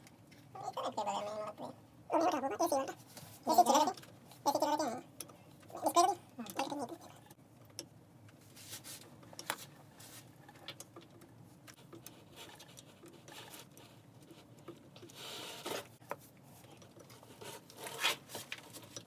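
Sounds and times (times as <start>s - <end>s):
scratchy rustling: 17.1s - 19.0s.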